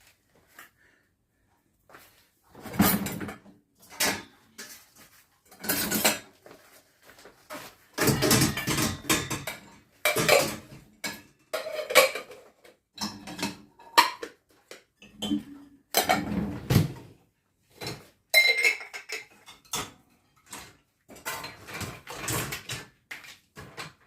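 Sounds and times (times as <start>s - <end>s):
dishes and cutlery clinking: 2.6s - 6.4s, 7.6s - 14.4s, 15.0s - 16.4s, 17.7s - 23.0s.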